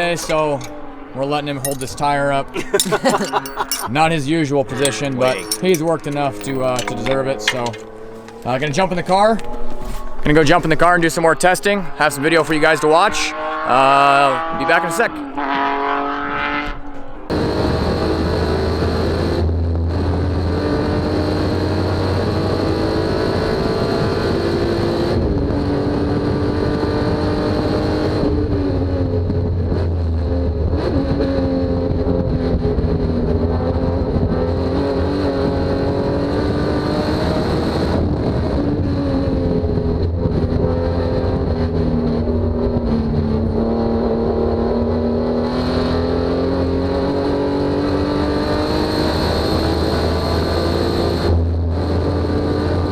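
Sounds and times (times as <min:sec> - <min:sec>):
race car engine: 0:00.0 - 0:52.9.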